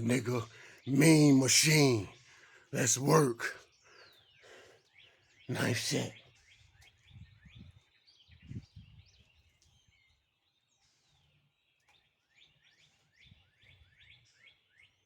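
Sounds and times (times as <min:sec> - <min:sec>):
small bird chirping: 0:03.6 - 0:15.0.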